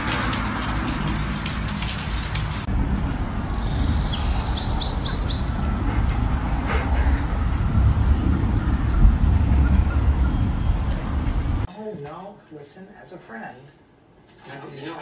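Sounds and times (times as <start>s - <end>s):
rapid crackle of clicks: 0.0s - 2.7s
low outdoor rumble: 0.0s - 11.7s
small birds chirping: 2.8s - 11.6s.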